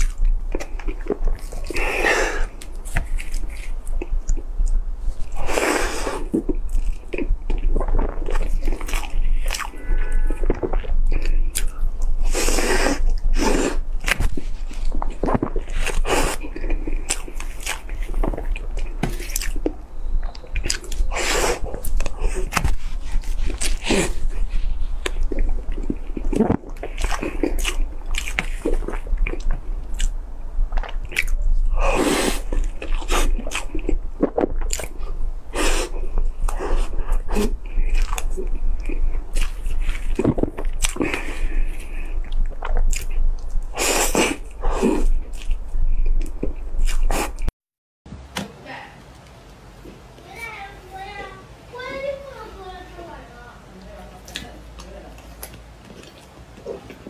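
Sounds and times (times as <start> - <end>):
person chewing: 0.0 - 47.5, 54.2 - 57.0
wet mouth clicks: 10.4 - 24.3, 25.0 - 35.0.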